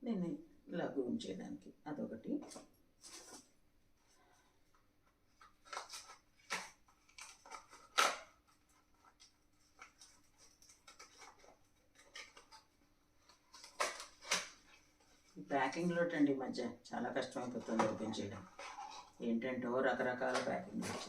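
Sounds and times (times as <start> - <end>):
packaging rustling and crinkling: 5.3 - 15.4.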